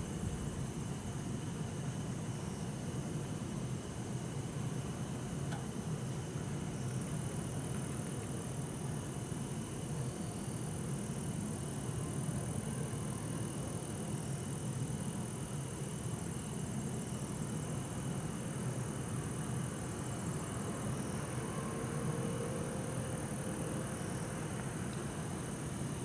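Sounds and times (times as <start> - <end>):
crickets trilling: 0.0 - 26.0
distant city traffic rumble: 20.3 - 25.8.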